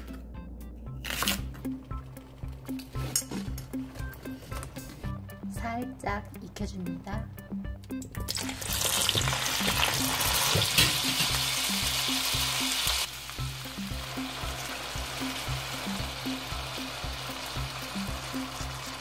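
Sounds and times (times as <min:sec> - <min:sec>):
potatoes sizzling in hot oil: 0:08.3 - 0:19.0.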